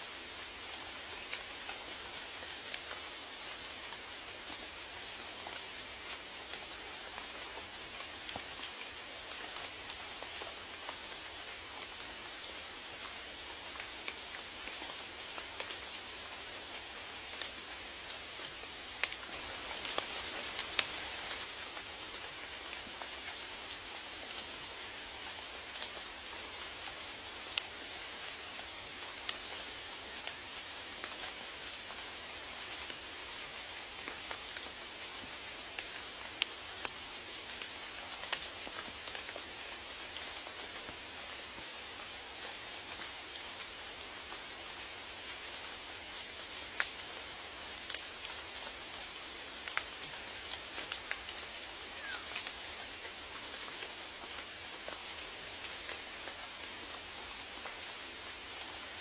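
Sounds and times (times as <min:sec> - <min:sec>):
rain pattering on a surface: 0:00.0 - 0:59.0.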